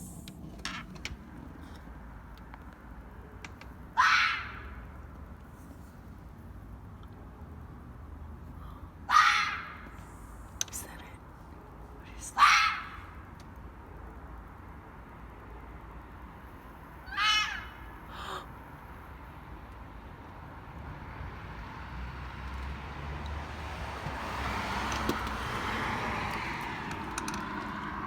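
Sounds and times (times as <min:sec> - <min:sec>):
animal screaming call: 0:04.0 - 0:04.7, 0:09.1 - 0:09.8, 0:12.2 - 0:13.1, 0:17.1 - 0:18.5
rushing vehicle noise: 0:17.7 - 0:28.0.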